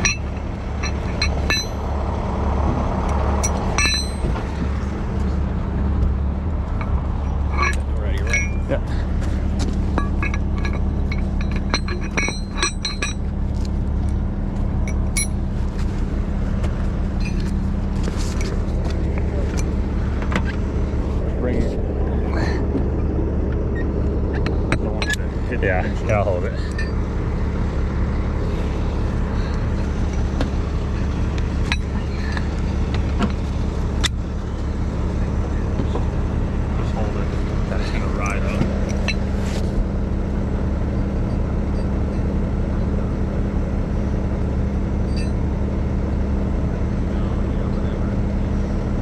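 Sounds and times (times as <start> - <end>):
metallic clinks and rattles: 0.0 - 2.0, 3.0 - 4.8, 6.7 - 15.6, 17.1 - 22.6, 23.7 - 34.9, 37.8 - 39.8, 45.0 - 45.5
diesel engine idling: 0.0 - 49.0.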